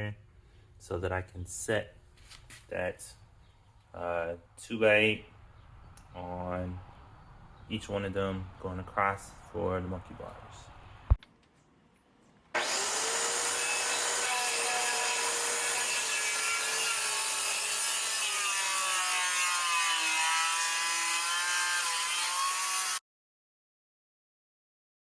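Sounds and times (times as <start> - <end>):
power saw cutting wood: 12.6 - 23.0.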